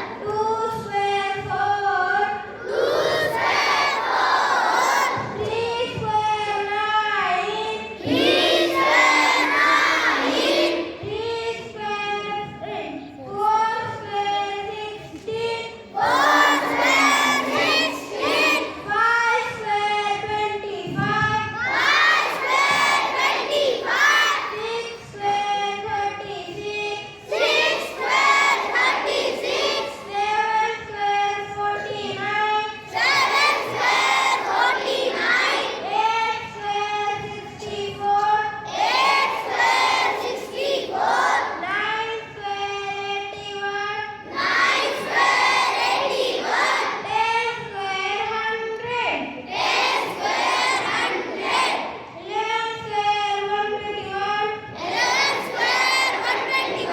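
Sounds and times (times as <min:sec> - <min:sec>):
children singing in unison: 0:00.0 - 0:11.6, 0:15.9 - 0:19.6, 0:20.8 - 0:25.2, 0:25.8 - 0:30.9, 0:31.7 - 0:38.0, 0:38.6 - 0:41.7, 0:44.2 - 0:47.6, 0:49.5 - 0:52.1, 0:54.6 - 0:56.9.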